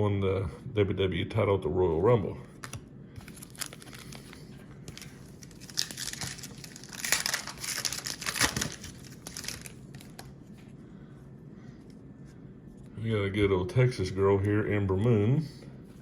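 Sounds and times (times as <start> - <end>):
plastic wrapper crinkling: 2.6 - 10.3.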